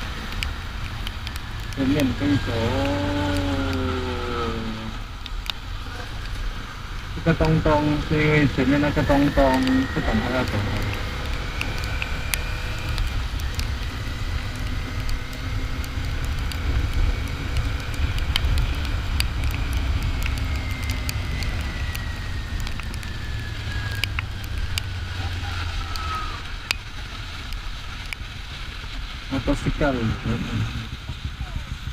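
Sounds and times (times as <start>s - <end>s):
high whine falling in pitch: 0.0s - 31.9s
motorcycle engine running: 0.0s - 31.9s
wind rumble on microphone: 0.0s - 31.9s
sharp ticks: 7.3s - 24.9s.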